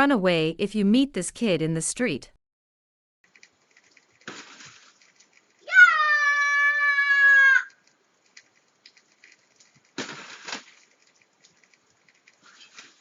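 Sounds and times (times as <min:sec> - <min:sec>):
loud high-pitched cry: 0:05.6 - 0:07.8.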